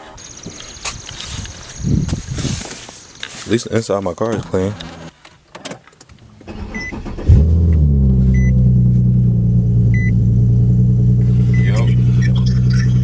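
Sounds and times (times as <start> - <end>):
car engine starting and idling: 6.4 - 13.0.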